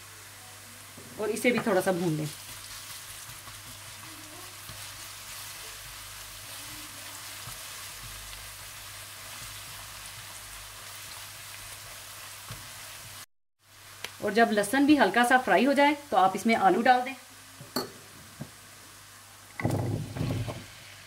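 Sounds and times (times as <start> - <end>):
onion sizzling in hot oil: 0.0 - 21.0
spatula stirring in a wok: 1.2 - 13.3.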